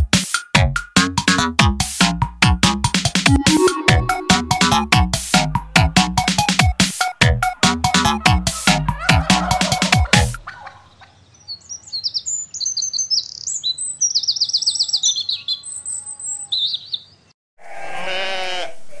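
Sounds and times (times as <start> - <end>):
long wavering call: 3.3 - 5.0
birds chirping and trilling: 9.1 - 17.4.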